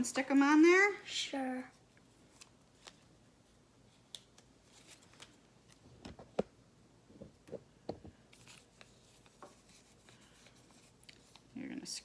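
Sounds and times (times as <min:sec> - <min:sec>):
paper stickers clicking and rustling: 0:04.0 - 0:06.3.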